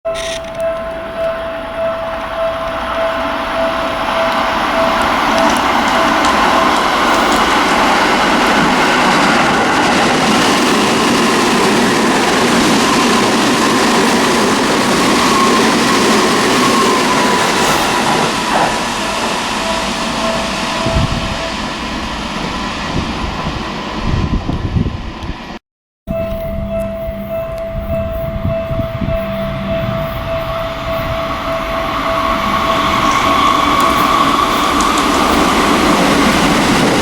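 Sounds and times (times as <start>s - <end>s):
train wheels rolling on rails: 0.1s - 25.6s, 27.5s - 37.0s
steady high whine: 26.1s - 37.0s.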